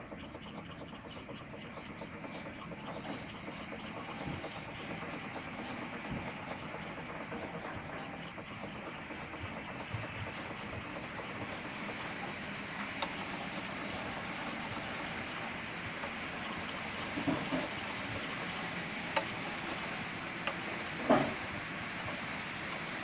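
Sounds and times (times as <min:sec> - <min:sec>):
knife scraping on whetstone: 0:13.0 - 0:21.4, 0:22.1 - 0:23.0.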